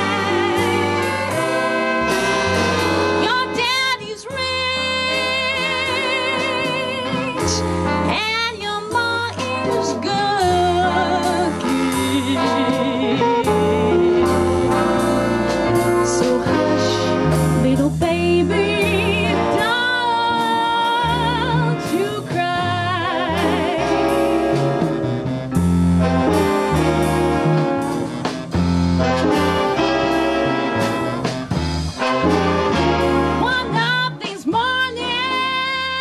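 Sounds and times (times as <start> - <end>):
swing band music: 0.0 - 36.0
woman singing with vibrato: 3.2 - 14.6, 16.1 - 24.2, 33.4 - 36.0.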